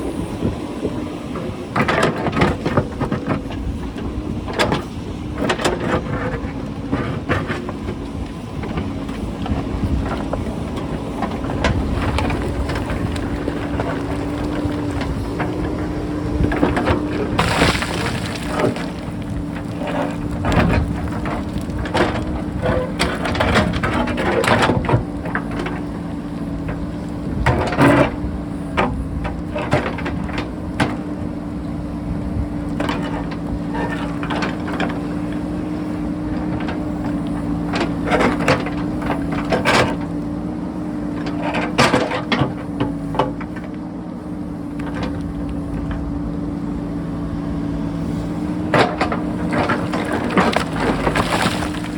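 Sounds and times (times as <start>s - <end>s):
diesel engine running: 0.0s - 51.9s
bucket knocking and scraping rock: 11.3s - 25.6s, 48.6s - 51.9s.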